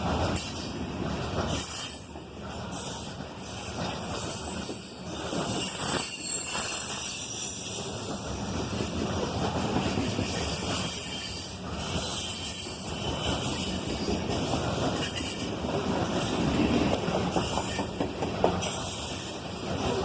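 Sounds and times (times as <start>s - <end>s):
high-pitched wheel squeals: 5.5s - 7.6s.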